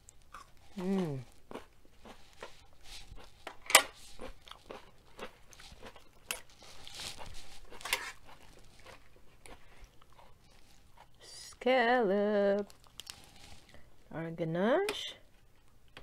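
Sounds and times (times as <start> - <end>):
chewing and crunching food: 0.0 - 11.7, 12.4 - 13.9
lettuce leaf rustling: 6.6 - 8.9.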